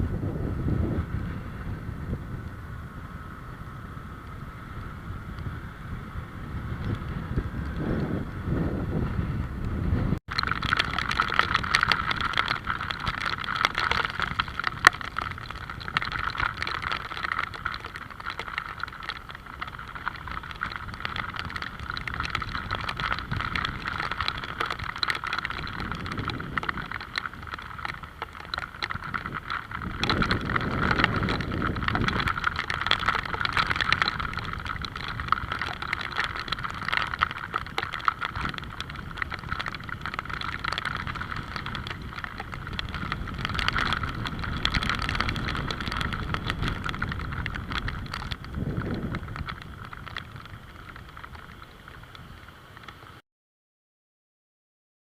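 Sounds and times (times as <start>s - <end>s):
road vehicles passing: 0.0s - 40.6s
steady rain falling: 0.2s - 53.2s.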